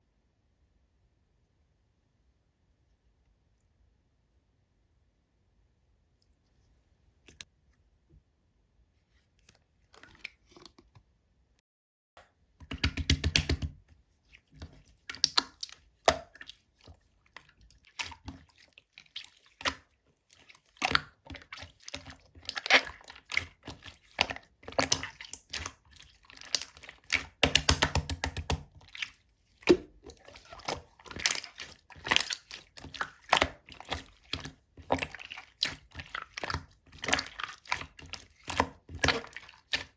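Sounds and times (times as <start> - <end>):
rapid squelching of slime: 9.0 - 11.0, 12.6 - 39.9.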